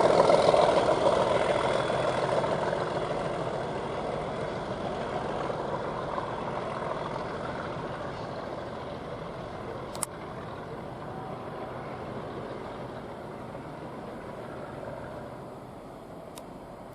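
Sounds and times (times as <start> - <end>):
diesel locomotive running: 0.0 - 16.9.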